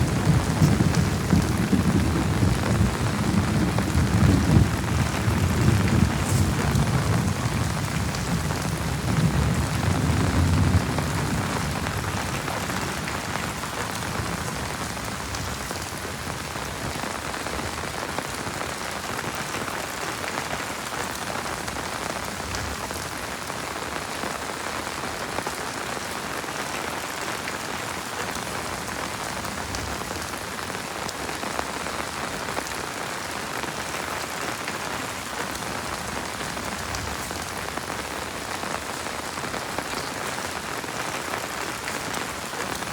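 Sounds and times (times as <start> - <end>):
low thunder rumble: 0.0 - 16.8
heavy rain: 0.0 - 42.9.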